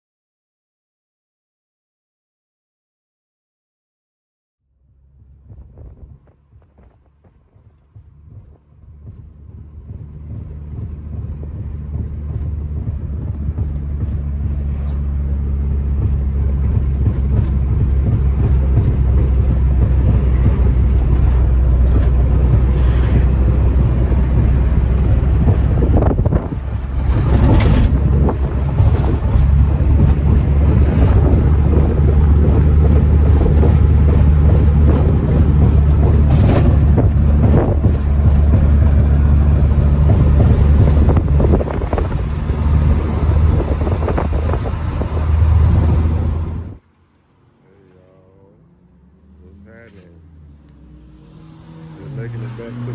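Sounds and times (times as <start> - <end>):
steady low drone: 4.7 - 46.8
noisy flares: 17.2 - 38.9.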